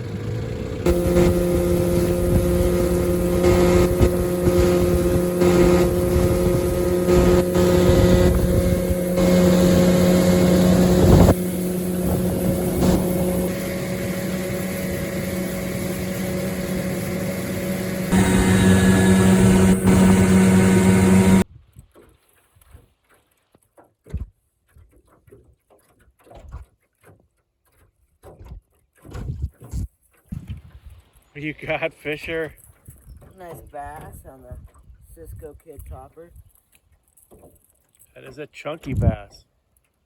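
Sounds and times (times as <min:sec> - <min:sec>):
outboard motor running: 0:00.0 - 0:21.4, 0:31.5 - 0:36.1
wind buffeting microphone: 0:00.9 - 0:21.4.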